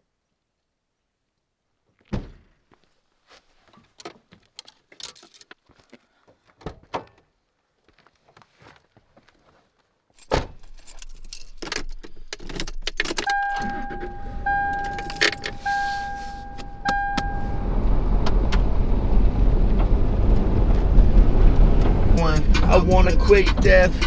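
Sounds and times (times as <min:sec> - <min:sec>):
thump: 0:02.1 - 0:02.5
keys jangling: 0:04.6 - 0:05.5, 0:10.2 - 0:17.6
clicks: 0:11.7 - 0:17.6
dashboard warning chime: 0:13.2 - 0:17.9
truck engine running: 0:13.4 - 0:24.0.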